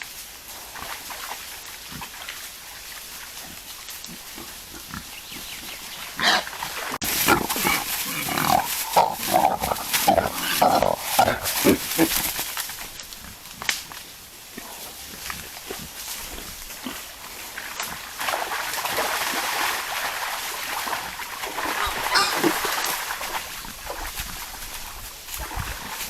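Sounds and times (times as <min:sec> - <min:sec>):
wild boars grunting: 0:03.4 - 0:12.5, 0:14.5 - 0:18.1.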